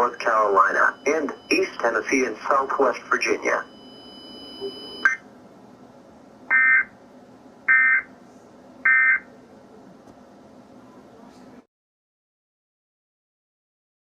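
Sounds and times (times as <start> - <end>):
harsh digital chirps: 0.0 - 5.2.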